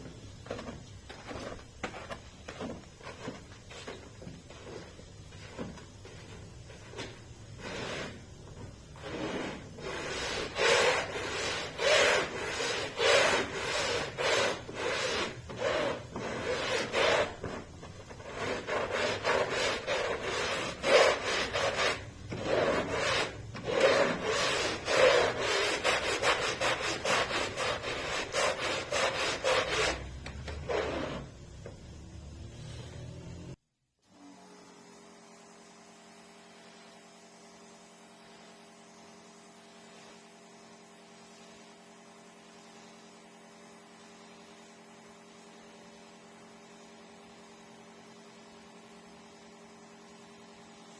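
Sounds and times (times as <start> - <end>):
stiff brush scrubbing carpet: 0.0 - 31.3.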